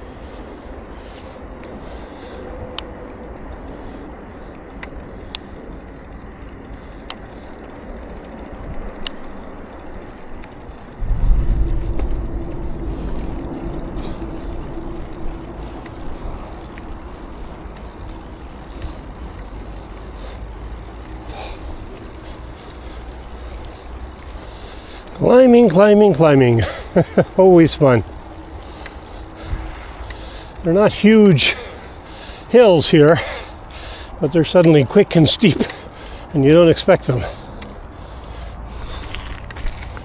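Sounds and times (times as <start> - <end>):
low rumble with steady hum: 0.0 - 25.4
road and wind noise: 0.0 - 40.0.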